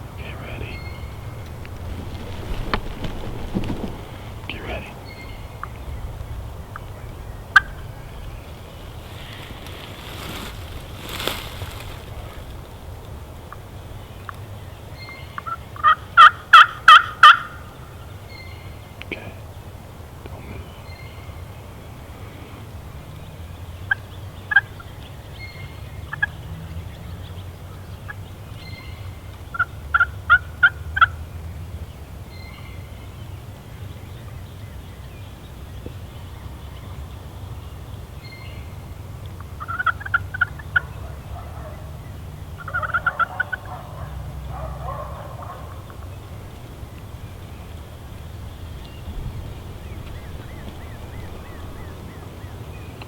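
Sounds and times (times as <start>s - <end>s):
turkey gobble: 39.6s - 40.9s, 42.6s - 45.8s
turkeys yelping: 42.6s - 43.8s.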